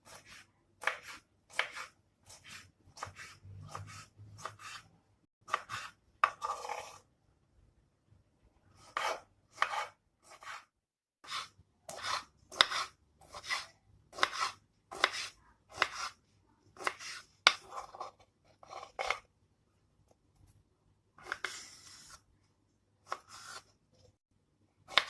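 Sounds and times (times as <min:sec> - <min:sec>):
knife cutting on a cutting board: 0:00.0 - 0:04.9, 0:05.5 - 0:07.0, 0:08.8 - 0:16.2, 0:16.8 - 0:19.2, 0:21.2 - 0:22.3, 0:23.0 - 0:23.8.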